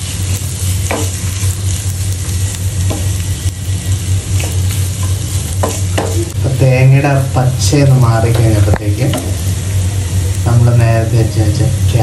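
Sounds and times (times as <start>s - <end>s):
coconut sizzling in a frying pan: 0.0s - 12.0s.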